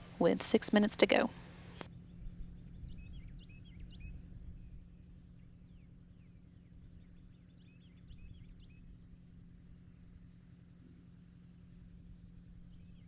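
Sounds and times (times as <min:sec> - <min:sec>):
low rumbling background noise: 0:00.0 - 0:13.0
steady hum: 0:00.0 - 0:13.0.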